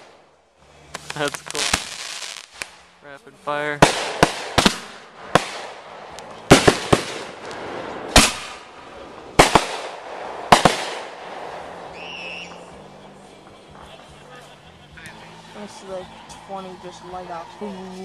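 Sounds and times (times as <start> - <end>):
firework bangs: 0.0 - 3.0, 3.7 - 14.6
firework crackling hiss: 0.0 - 3.0, 3.6 - 14.5.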